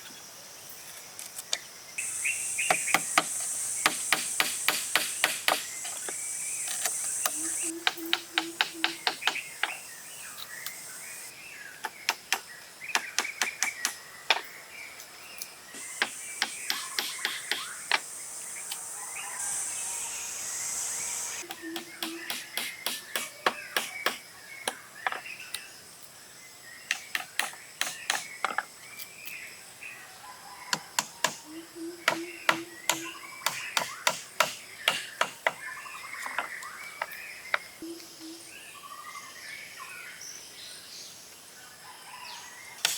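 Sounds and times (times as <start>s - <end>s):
insects buzzing: 0.0s - 29.6s, 30.5s - 38.9s, 42.7s - 42.9s
birds chirping: 2.0s - 29.6s, 30.6s - 40.0s
sharp hand-tool strikes: 2.7s - 6.0s, 16.0s - 18.0s, 21.4s - 24.8s, 26.9s - 28.6s, 32.1s - 35.6s.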